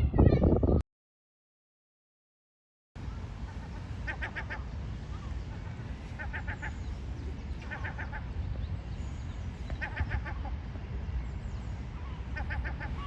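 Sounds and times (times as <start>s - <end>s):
bird calling: 3.0s - 8.5s, 9.1s - 10.6s, 12.0s - 13.0s.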